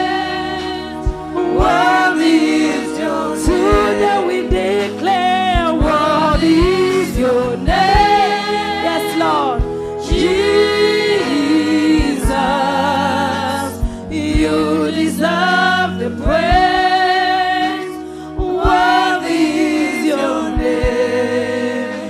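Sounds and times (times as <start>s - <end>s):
keyboard: 0.0s - 22.0s
singers holding sliding notes: 0.0s - 22.0s
kick drum beat: 1.0s - 2.0s, 3.4s - 4.8s, 5.4s - 12.7s, 13.8s - 14.8s, 16.2s - 17.0s, 18.4s - 19.1s, 20.5s - 21.2s.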